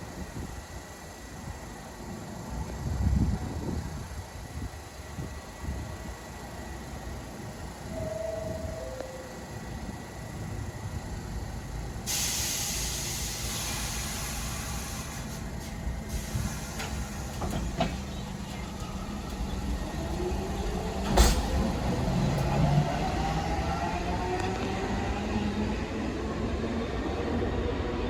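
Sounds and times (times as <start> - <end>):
train motor whine: 7.6 - 26.2
air brakes hissing: 12.0 - 18.9.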